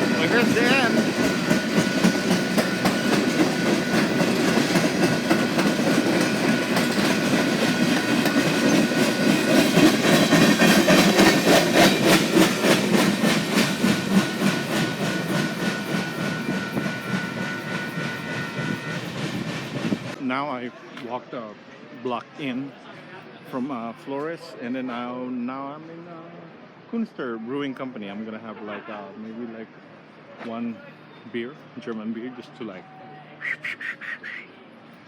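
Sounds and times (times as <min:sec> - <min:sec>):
train wheels clacking over rail joints: 0:00.0 - 0:20.2.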